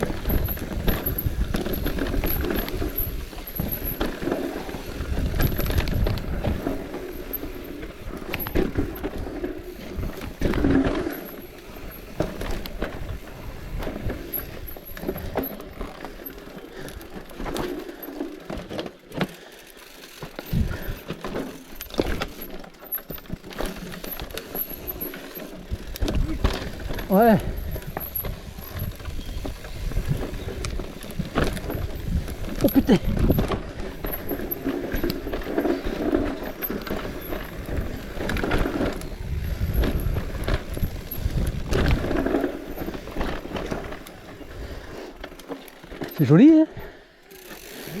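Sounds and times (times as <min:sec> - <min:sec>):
bicycle rattling on rough road: 0:00.0 - 0:48.0
wind buffeting microphone: 0:37.4 - 0:42.3.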